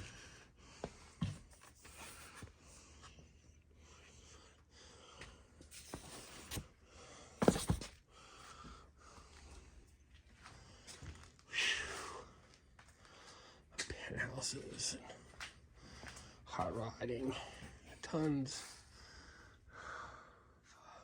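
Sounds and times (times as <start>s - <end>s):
handling knocks and thumps: 7.4s - 8.0s.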